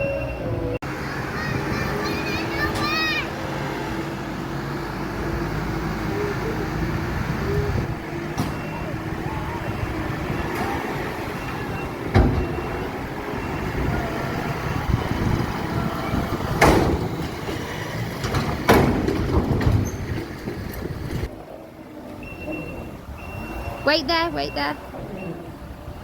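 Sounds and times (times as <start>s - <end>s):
tractor engine running: 0.0s - 26.0s
sharp knocks or bangs: 16.6s - 19.9s.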